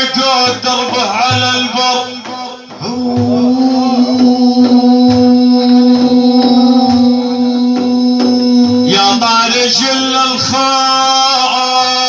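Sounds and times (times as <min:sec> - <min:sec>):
drum beat: 0:00.0 - 0:10.8.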